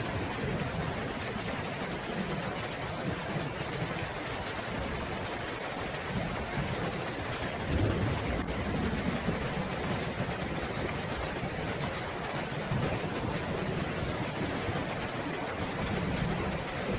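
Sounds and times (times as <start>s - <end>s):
steady rain falling: 0.0s - 16.9s
distant thunder rumble: 6.2s - 16.9s.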